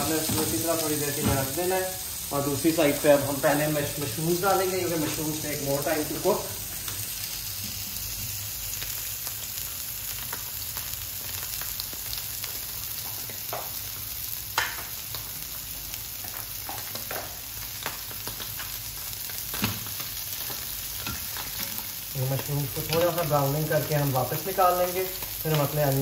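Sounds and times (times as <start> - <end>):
food sizzling in pans: 0.0 - 26.0.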